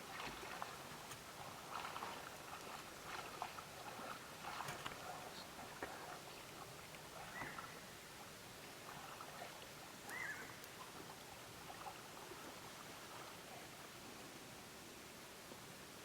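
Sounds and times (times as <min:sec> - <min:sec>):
faint high animal calls: 0:10.1 - 0:10.6.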